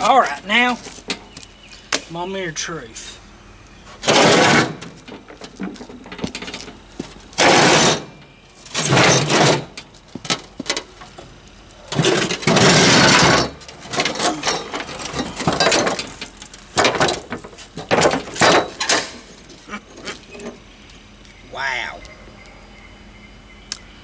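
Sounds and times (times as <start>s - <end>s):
metal mower deck scraping: 3.8s - 20.7s.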